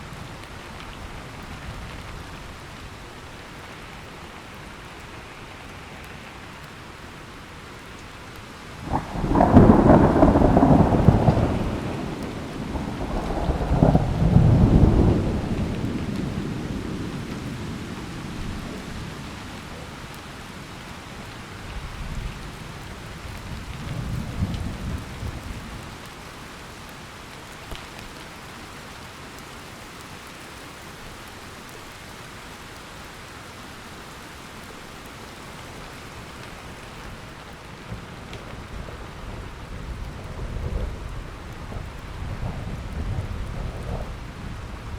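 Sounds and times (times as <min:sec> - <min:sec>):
steady rain: 0:00.0 - 0:44.9
rolling thunder: 0:08.8 - 0:18.8, 0:37.9 - 0:44.9.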